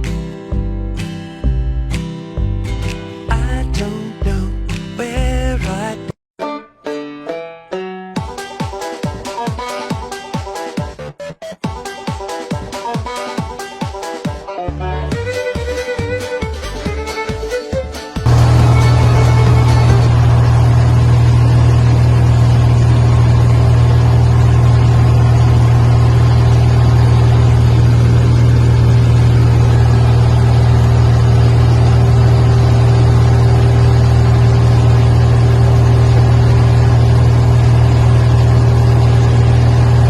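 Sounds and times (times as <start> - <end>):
motor droning: 18.2 - 40.0.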